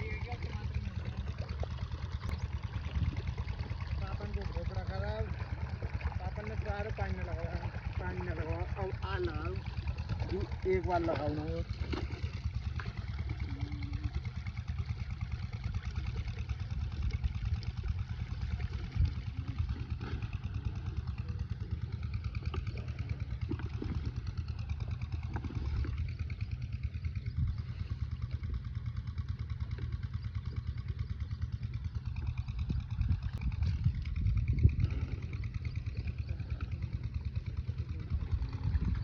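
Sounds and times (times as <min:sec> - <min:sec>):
diesel engine chugging: 0:00.0 - 0:39.0.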